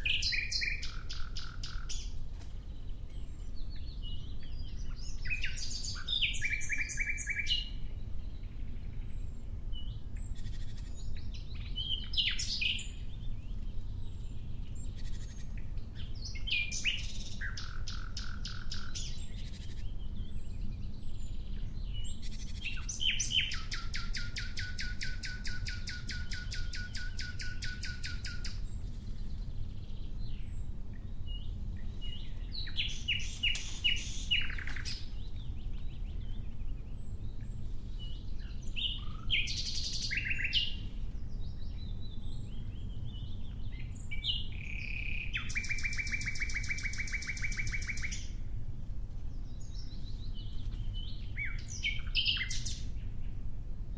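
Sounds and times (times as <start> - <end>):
nightingale singing: 0.0 - 2.2, 2.8 - 48.4, 49.4 - 53.3
steady low rumble: 28.1 - 45.5.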